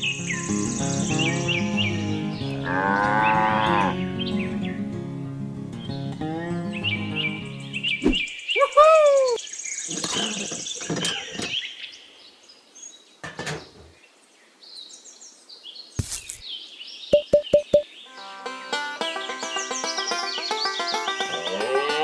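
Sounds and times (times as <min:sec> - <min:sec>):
birds chirping: 0:16.3 - 0:22.0.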